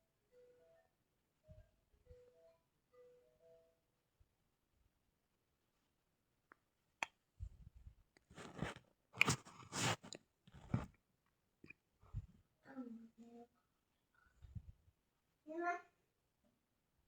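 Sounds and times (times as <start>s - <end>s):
crackling scratches in hair: 8.3s - 10.9s.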